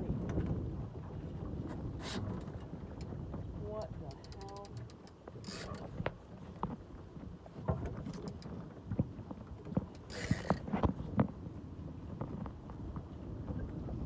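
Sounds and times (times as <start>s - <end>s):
low wind rumble: 0.0s - 14.0s
water knocking against hull: 5.7s - 11.4s.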